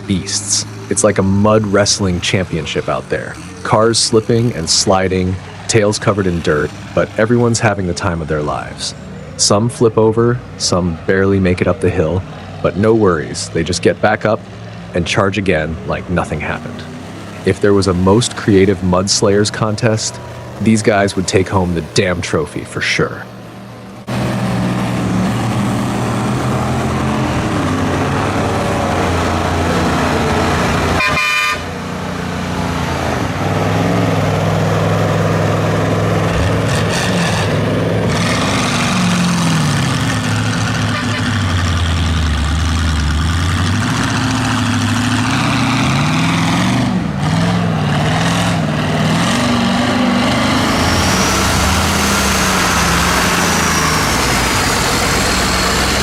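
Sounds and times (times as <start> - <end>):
truck engines revving: 0.0 - 56.0.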